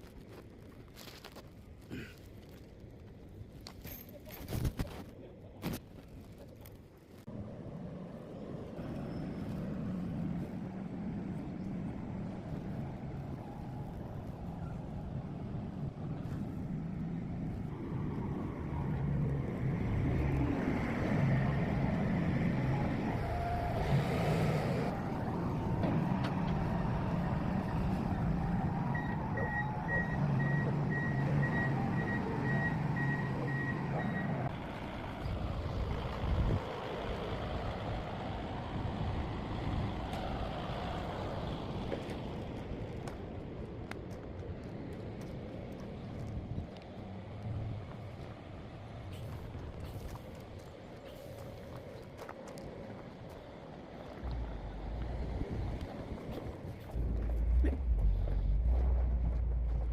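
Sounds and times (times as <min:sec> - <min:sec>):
heavy vehicle engine running: 0:07.3 - 0:59.9
reversing alarm beeping: 0:29.0 - 0:34.5.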